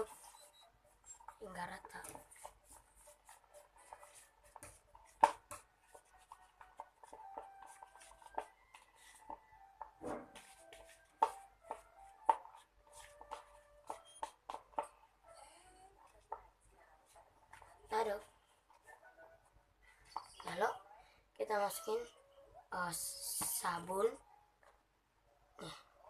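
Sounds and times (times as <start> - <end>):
stirrer scraping a container: 0.0 - 15.0.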